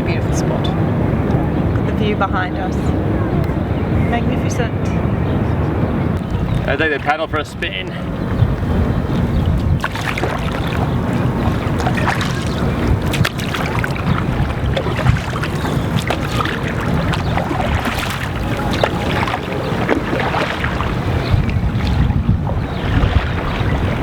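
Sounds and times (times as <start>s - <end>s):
wind rumbling on microphone: 0.0s - 24.0s
paddle splashing in water: 8.0s - 24.0s.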